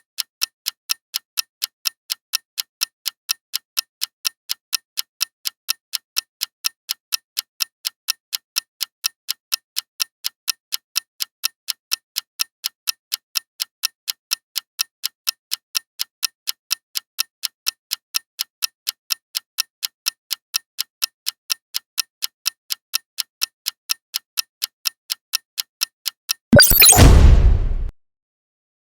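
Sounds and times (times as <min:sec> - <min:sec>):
countdown timer ticking: 0:26.6 - 0:27.9
sci-fi alert blast: 0:26.6 - 0:27.9.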